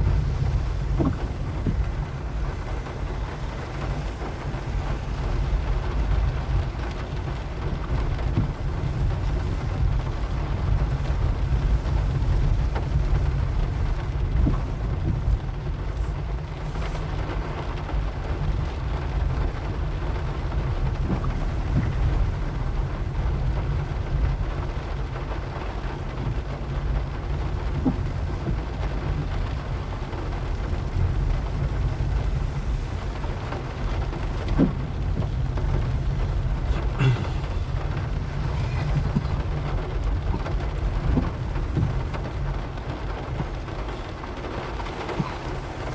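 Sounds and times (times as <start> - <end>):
car engine and tyres rumbling: 0.0 - 45.9
rain hissing: 0.0 - 45.9.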